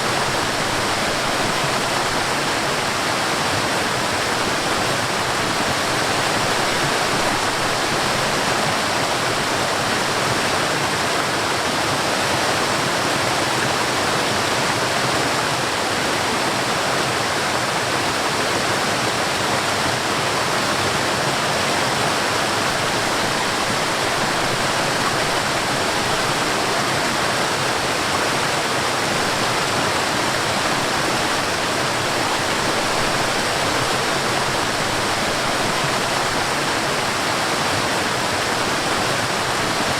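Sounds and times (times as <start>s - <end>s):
stream and waterfall rushing: 0.0s - 39.9s.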